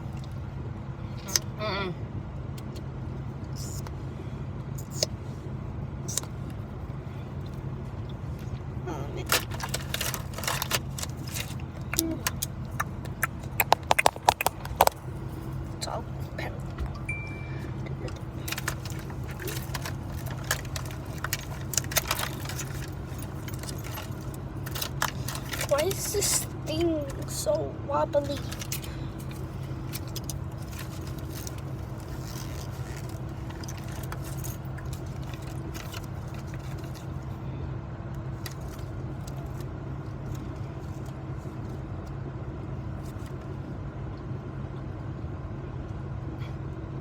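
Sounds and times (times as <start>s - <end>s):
car cabin low hum: 0.0s - 47.0s
small items clicking and rattling: 9.2s - 15.0s, 18.1s - 27.3s, 28.2s - 37.2s.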